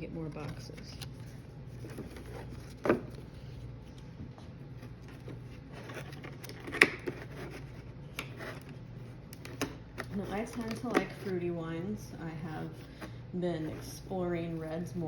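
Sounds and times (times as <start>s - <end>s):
box rustling: 0.0s - 3.9s, 4.6s - 9.1s.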